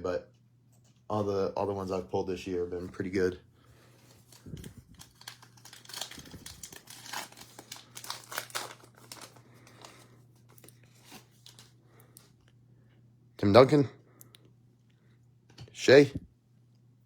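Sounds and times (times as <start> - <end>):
cellophane wrapper crinkling: 3.8 - 12.3
cards being handled: 3.9 - 11.8.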